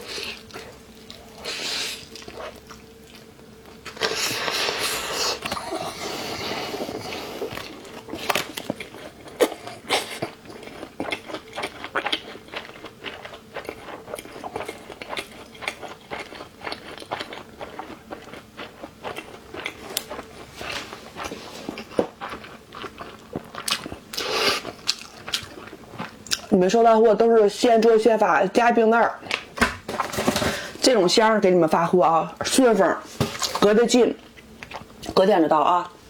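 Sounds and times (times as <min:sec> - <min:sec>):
crunchy food chewing: 0:00.0 - 0:26.6.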